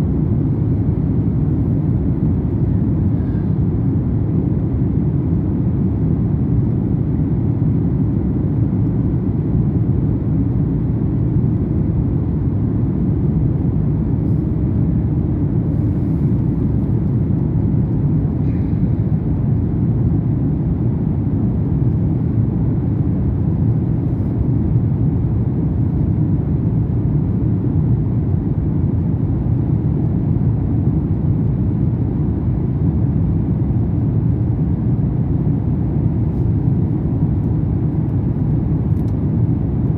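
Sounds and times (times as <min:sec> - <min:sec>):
jet airliner cabin rumble: 0:00.0 - 0:39.9.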